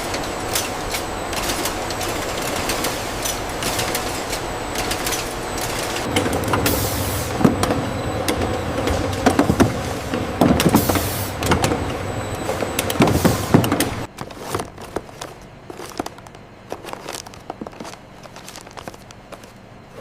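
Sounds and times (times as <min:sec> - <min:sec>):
factory machinery running: 0:00.0 - 0:20.0.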